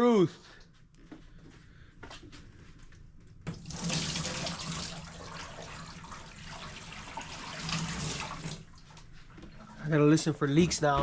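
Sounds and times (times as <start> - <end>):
water pouring into bathtub: 3.5 - 9.8.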